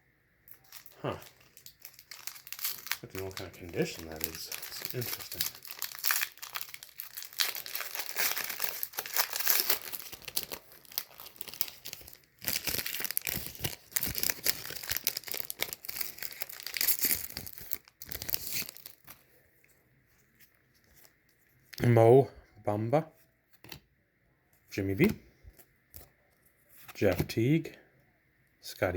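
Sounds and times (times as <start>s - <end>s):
plastic wrapper tearing and crinkling: 0.5s - 19.3s.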